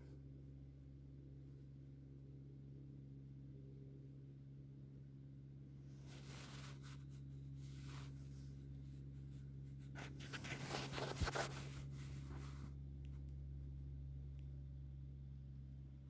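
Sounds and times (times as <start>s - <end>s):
steady low hum: 0.0s - 16.0s
faint rubbing and scratching: 5.8s - 12.8s.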